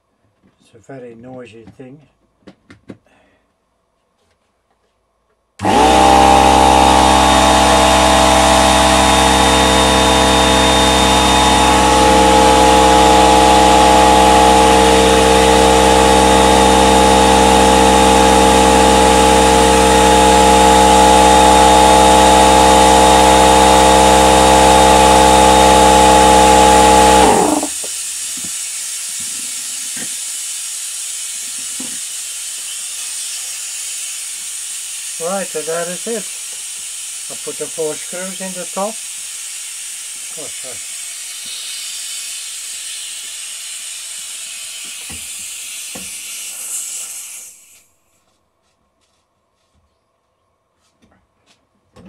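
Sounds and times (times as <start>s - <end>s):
air compressor running: 5.6s - 47.9s
hiss of air: 27.7s - 47.9s.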